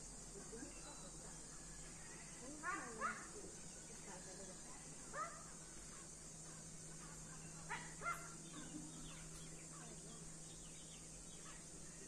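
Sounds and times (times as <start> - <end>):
faint bird chirps: 0.4 - 12.0
birds calling: 5.1 - 12.0.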